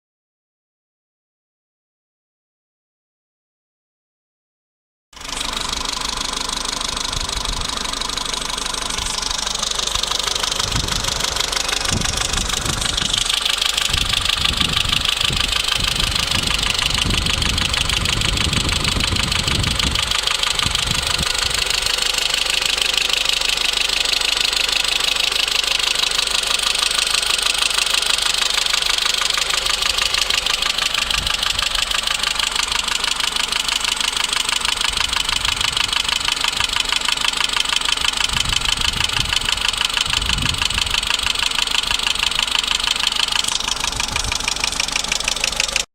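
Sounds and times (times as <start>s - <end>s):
car engine idling: 5.2s - 45.9s
low rumbling: 5.2s - 45.9s
metallic valvetrain ticking: 7.2s - 45.9s.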